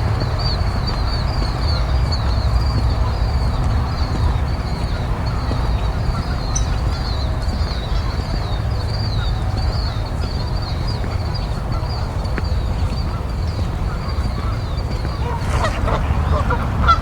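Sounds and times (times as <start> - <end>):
small birds chirping: 0.0 - 17.0
steady low rumble: 0.0 - 17.0
waterfowl calling: 14.0 - 17.0.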